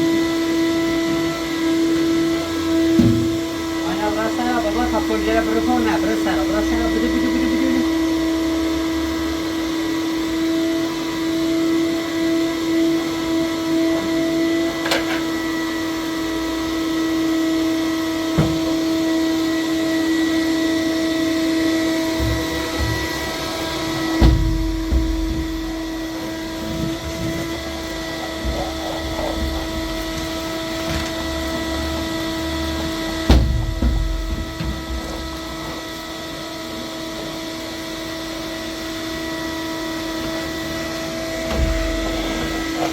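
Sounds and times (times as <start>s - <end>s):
vacuum cleaner running: 0.0s - 42.9s
sharp knocks: 3.0s - 3.5s, 24.1s - 27.4s.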